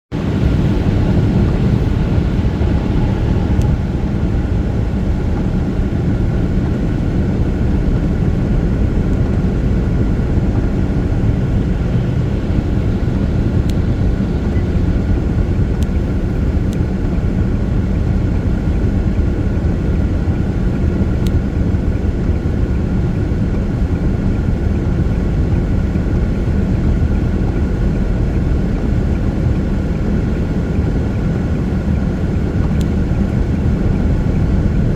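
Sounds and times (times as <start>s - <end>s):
vehicle driving on wet road: 0.2s - 21.6s.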